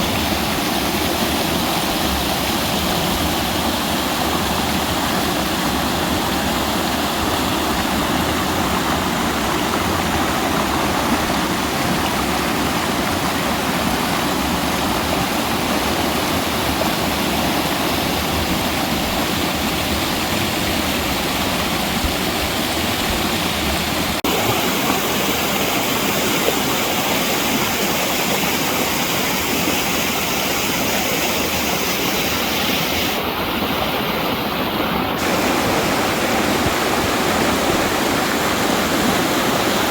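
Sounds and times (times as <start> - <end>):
creek water rushing over rocks: 0.0 - 39.9.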